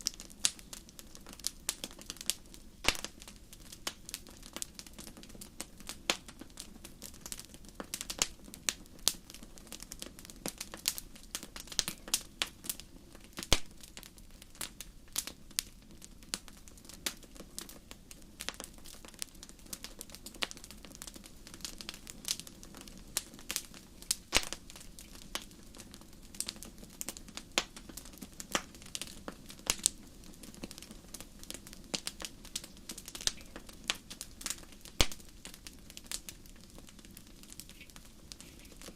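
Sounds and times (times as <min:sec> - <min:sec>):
campfire crackling and popping: 0:00.0 - 0:38.9
flames hissing: 0:18.3 - 0:38.9.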